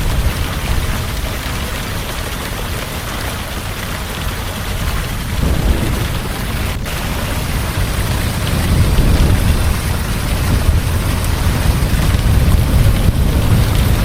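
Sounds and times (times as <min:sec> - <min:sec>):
heavy rain falling: 0:05.2 - 0:08.2
deep rolling thunder: 0:05.2 - 0:09.4.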